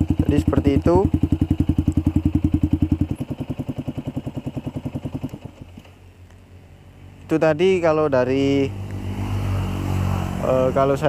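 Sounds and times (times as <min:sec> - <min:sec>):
motorcycle engine idling: 0:00.0 - 0:08.4.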